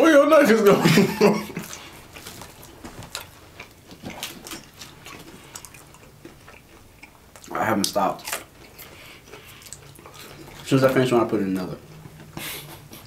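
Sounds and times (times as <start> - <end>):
people chewing with wet mouth clicks: 1.5 - 13.0.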